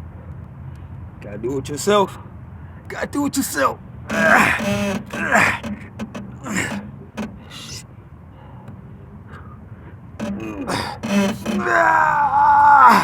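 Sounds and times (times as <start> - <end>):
faint clicks: 0.2 - 1.0.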